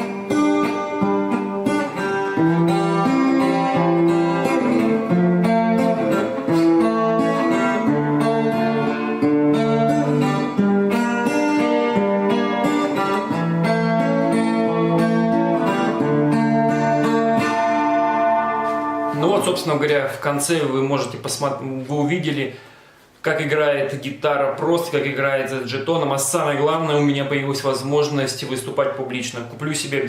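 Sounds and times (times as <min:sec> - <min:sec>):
acoustic guitar playing: 0:00.0 - 0:23.2.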